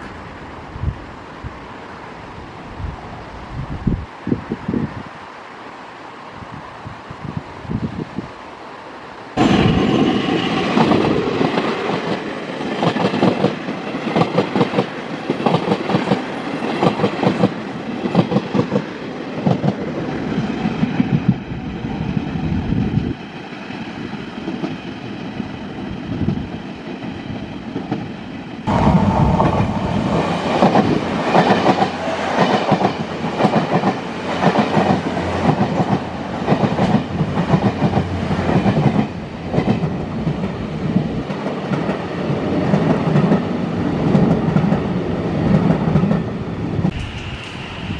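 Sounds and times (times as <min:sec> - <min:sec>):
train rumble: 0:06.3 - 0:47.9
train wheels clicking over rails: 0:09.4 - 0:21.5, 0:25.8 - 0:47.9.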